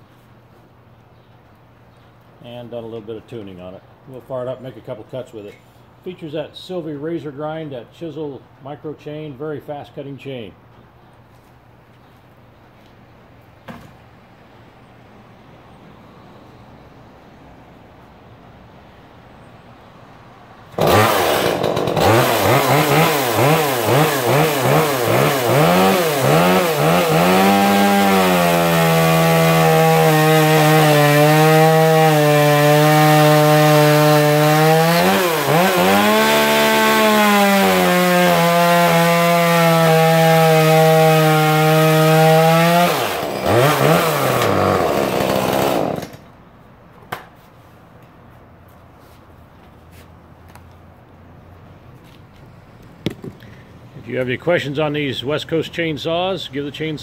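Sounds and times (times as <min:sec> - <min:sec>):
chainsaw revving and cutting wood: 0:20.7 - 0:46.3.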